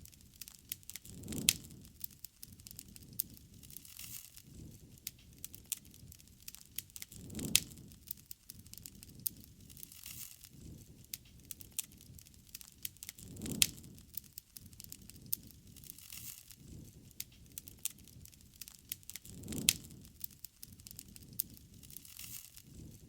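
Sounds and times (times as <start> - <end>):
campfire crackling: 0.0 - 23.0
fire popping: 0.0 - 23.0.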